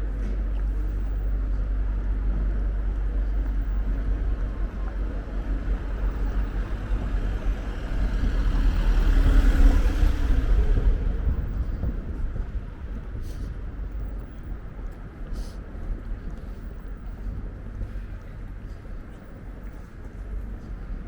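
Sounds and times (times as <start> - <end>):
deep steady city rumble: 0.0 - 21.0
vehicle passing close by: 6.8 - 11.9.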